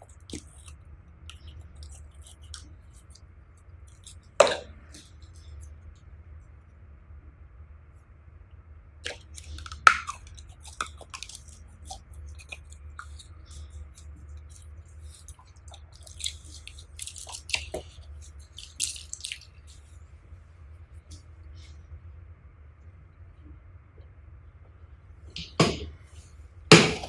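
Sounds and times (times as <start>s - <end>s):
slime squished by hand: 15.1s - 19.8s.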